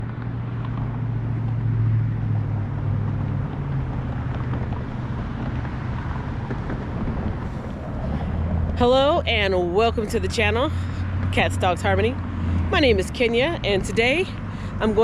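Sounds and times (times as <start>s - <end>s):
car engine hum: 0.0s - 15.0s
road noise: 0.0s - 15.0s.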